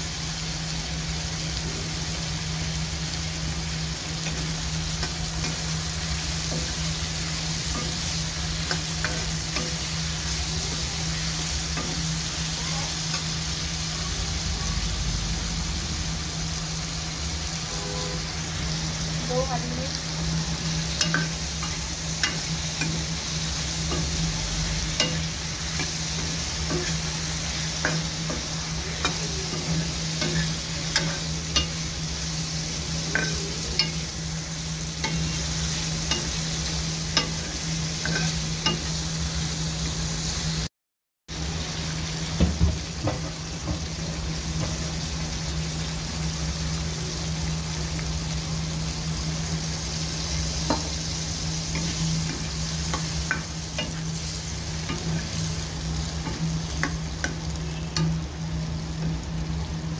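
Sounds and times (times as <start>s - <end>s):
potatoes sizzling in oil: 0.0s - 40.7s, 41.3s - 59.9s
low hum: 13.1s - 38.0s.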